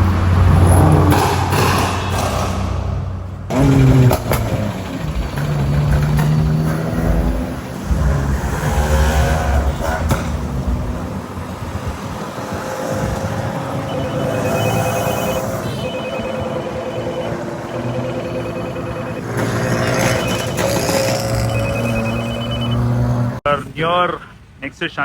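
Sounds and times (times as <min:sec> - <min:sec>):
car engine accelerating: 0:00.0 - 0:23.4
road noise: 0:00.0 - 0:25.0
phone ringing: 0:13.4 - 0:23.1.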